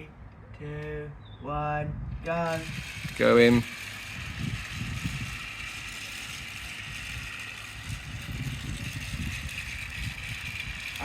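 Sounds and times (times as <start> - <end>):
toy train motor whine: 2.2 - 11.0
toy train wheels rattling on track: 2.2 - 11.0.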